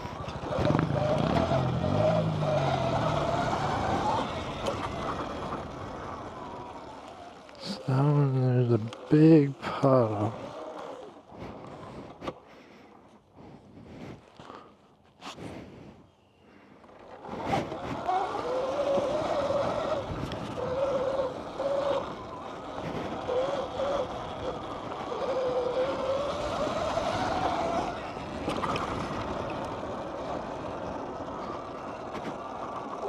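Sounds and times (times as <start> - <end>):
tyre noise: 0.0 - 8.2
dirt bike motor whine: 0.0 - 12.5, 17.0 - 33.0.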